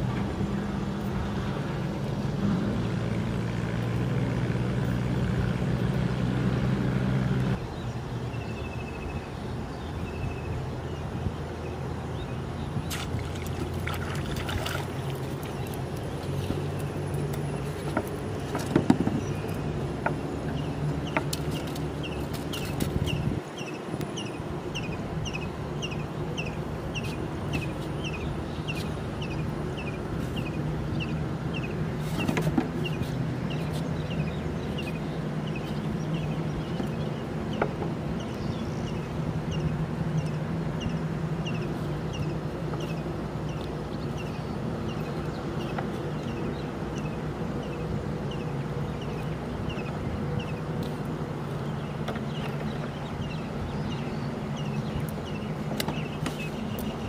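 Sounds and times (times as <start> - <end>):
low motor hum: 0.0 - 57.0
bird chirping: 19.0 - 50.7, 51.5 - 57.0.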